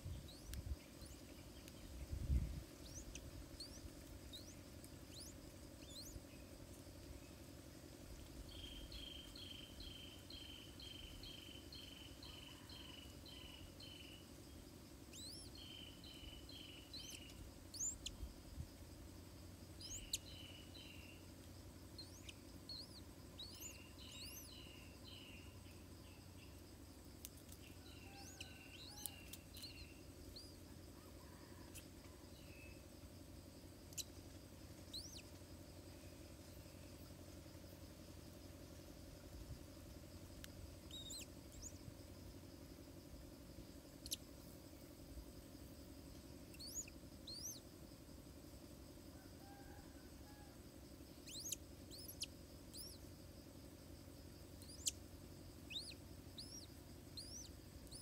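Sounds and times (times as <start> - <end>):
bird chirps: 0.0 - 6.5, 8.4 - 14.3, 15.1 - 18.3, 19.8 - 21.3, 21.9 - 26.6, 27.5 - 30.6, 34.8 - 35.3, 40.8 - 41.8, 44.0 - 44.2, 46.5 - 47.7, 51.2 - 53.0, 54.6 - 55.0, 55.6 - 58.0.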